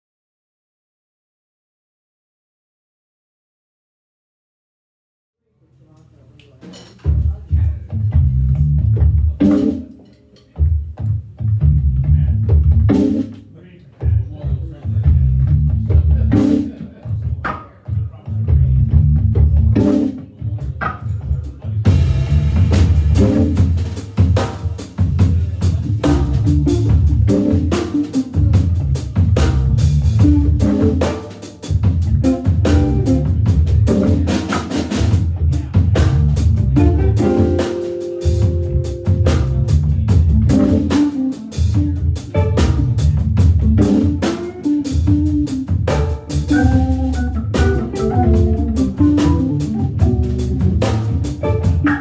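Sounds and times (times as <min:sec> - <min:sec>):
drum kit with snare and rimshots: 0:06.4 - 0:52.0
organ bass and chords: 0:08.0 - 0:10.0, 0:11.4 - 0:13.4, 0:15.0 - 0:16.9, 0:18.5 - 0:20.2, 0:21.9 - 0:52.0.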